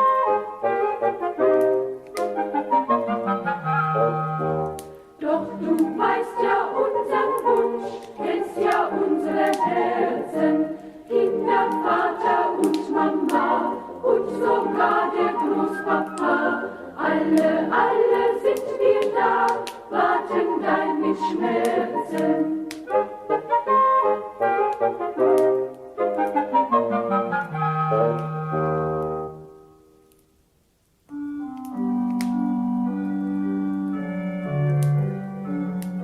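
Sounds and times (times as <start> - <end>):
choir singing: 5.2 - 24.2.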